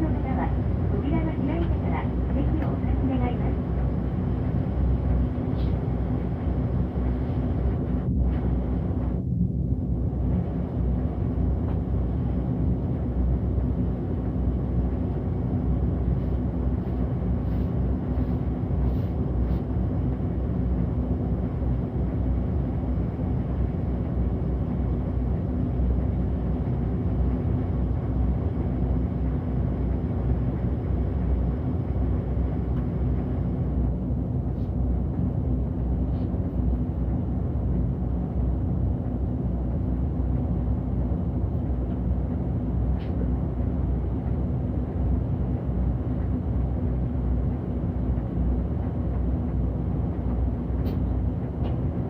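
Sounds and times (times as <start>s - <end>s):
bus engine rumbling: 0.0s - 52.0s.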